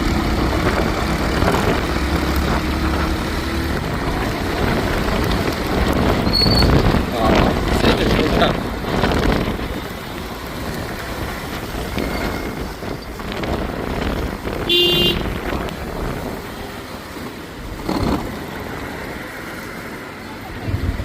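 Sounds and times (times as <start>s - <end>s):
street traffic: 0.0s - 21.0s
vehicle horn: 14.7s - 15.4s.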